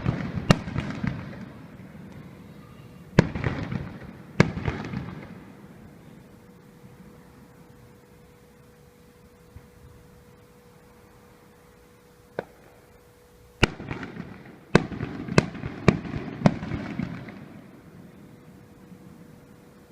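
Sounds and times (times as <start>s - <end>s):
fireworks bangs: 0.0s - 6.4s, 12.3s - 13.0s, 13.6s - 18.7s
fireworks crackling and rumble: 0.0s - 19.9s.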